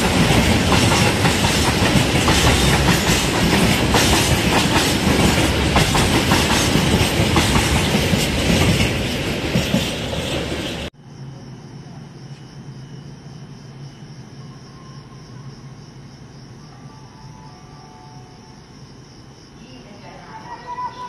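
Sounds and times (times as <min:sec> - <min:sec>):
crickets chirping: 0:00.0 - 0:21.0
train rolling past: 0:00.0 - 0:21.0.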